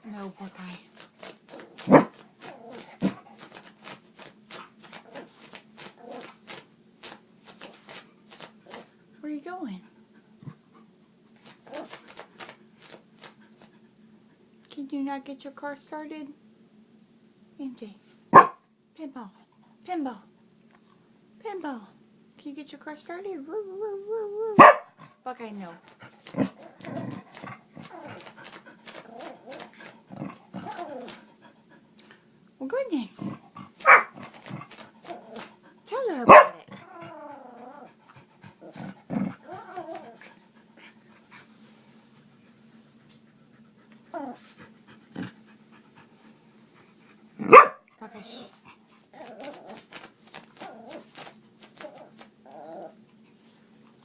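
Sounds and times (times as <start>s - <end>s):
dog whining and huffing: 1.0s - 9.0s, 11.4s - 13.7s, 25.9s - 31.8s, 33.6s - 41.2s, 43.2s - 46.3s, 48.3s - 53.3s
dog huffing rasping breaths: 25.8s - 32.3s, 37.9s - 47.4s.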